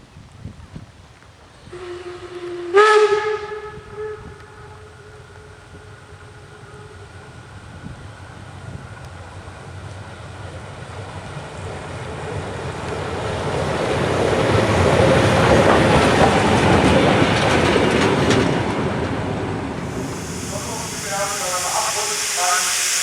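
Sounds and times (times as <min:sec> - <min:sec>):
train wheels clicking on rails: 0:08.1 - 0:23.0.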